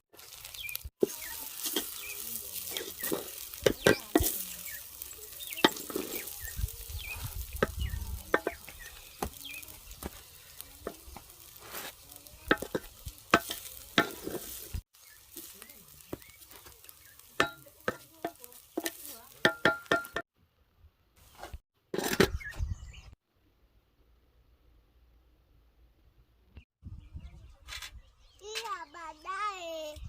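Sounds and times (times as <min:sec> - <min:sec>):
food sizzling in a pot: 0:00.0 - 0:20.3
utensil stirring and scraping: 0:00.2 - 0:20.2
utensil knocking against pot: 0:17.4 - 0:20.2.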